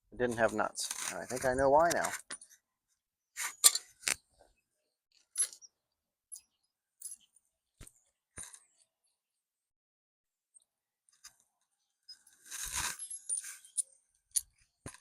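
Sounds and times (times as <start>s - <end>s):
bolts and washers clinking: 3.5s - 4.2s, 5.3s - 5.7s.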